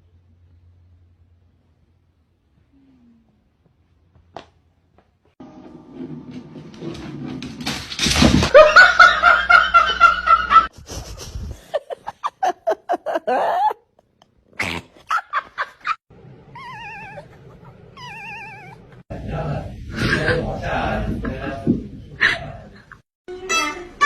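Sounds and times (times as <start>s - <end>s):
people laughing: 8.5s - 13.8s, 19.9s - 23.0s
pet animal noises: 16.5s - 19.0s.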